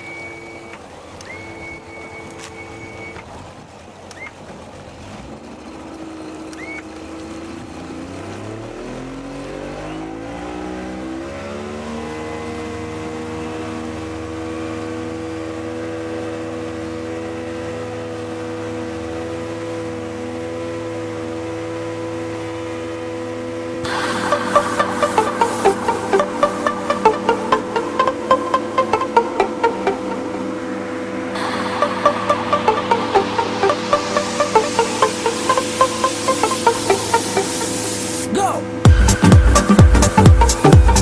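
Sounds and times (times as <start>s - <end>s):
motorboat engine: 0.0s - 41.0s
dance music: 23.9s - 41.0s.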